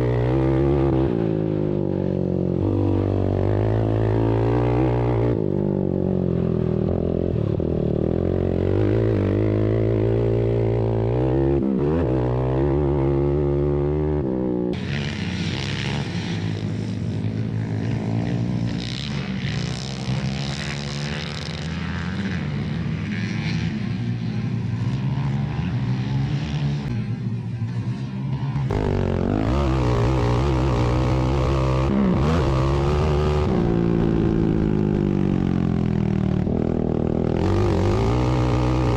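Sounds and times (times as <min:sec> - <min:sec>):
atv engines revving: 0:00.0 - 0:38.9.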